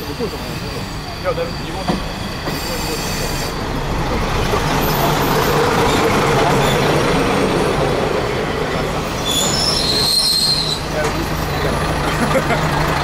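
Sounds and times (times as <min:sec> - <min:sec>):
high thin brake squeal: 0:00.0 - 0:03.9, 0:09.0 - 0:11.8
diesel railcar wheels rumbling on rail: 0:00.0 - 0:13.0.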